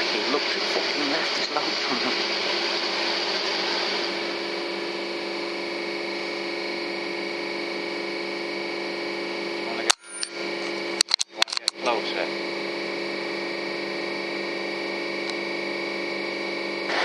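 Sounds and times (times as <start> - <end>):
machine hum with hiss: 0.0 - 17.0.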